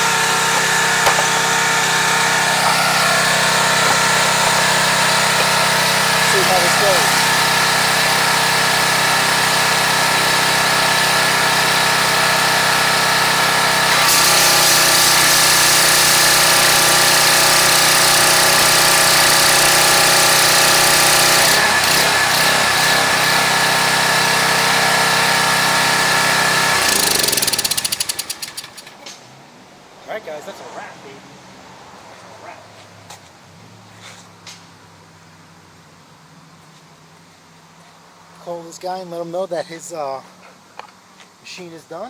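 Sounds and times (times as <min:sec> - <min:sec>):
pressure washer engine running: 0:00.0 - 0:29.1.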